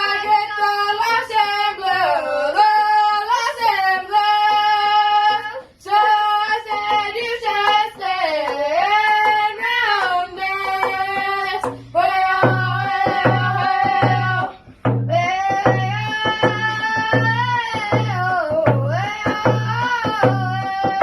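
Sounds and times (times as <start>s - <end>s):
steady drum beat: 5.9s - 21.0s.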